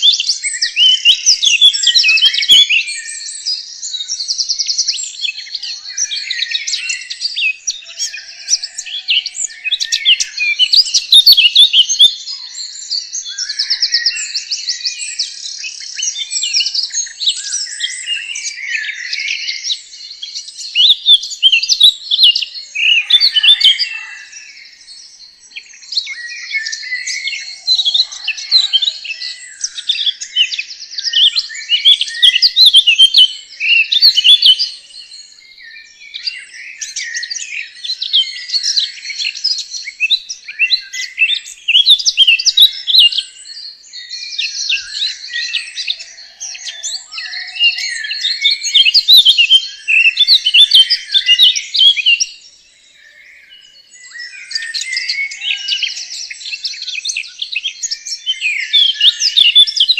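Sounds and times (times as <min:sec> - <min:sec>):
bird twittering and chirping: 0:00.0 - 0:59.9.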